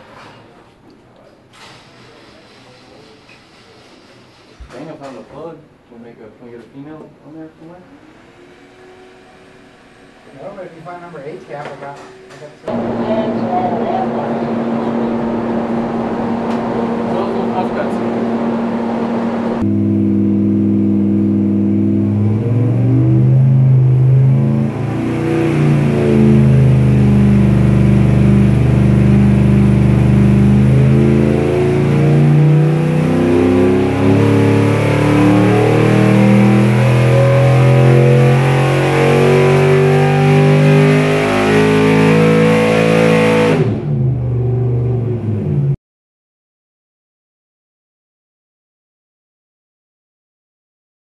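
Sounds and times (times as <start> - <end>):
engine revving under load: 7.9 - 45.8.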